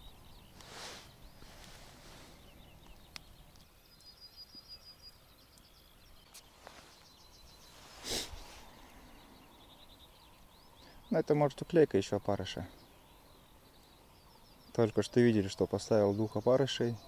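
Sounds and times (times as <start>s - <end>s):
birds chirping and whistling: 0.0s - 11.3s
short rush of noise: 7.7s - 8.6s.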